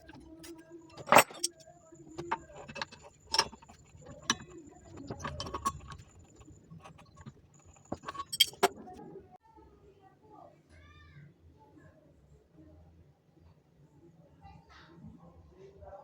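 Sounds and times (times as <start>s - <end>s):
small metal parts clinking: 0.0s - 9.0s.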